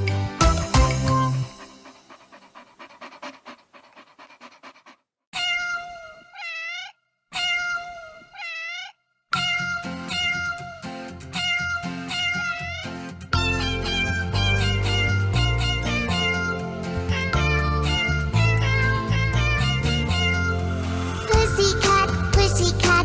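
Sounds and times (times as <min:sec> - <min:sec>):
bouncy backing track: 0:00.0 - 0:01.8
cat meows: 0:05.4 - 0:10.8, 0:11.4 - 0:13.0.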